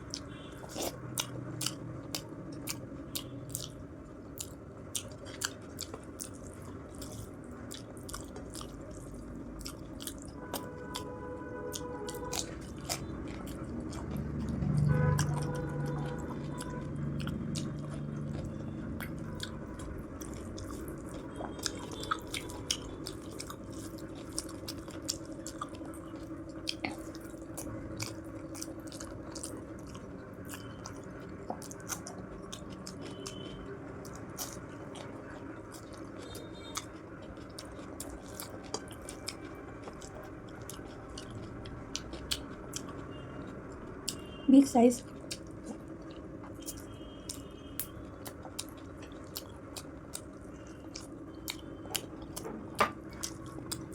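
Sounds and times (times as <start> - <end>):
chewing with wet mouth clicks: 0.0 - 11.1, 11.7 - 53.9.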